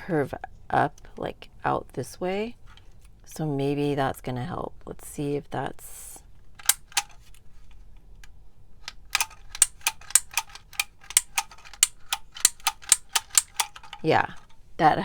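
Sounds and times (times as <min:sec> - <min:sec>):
label maker clicking: 0:08.9 - 0:14.0.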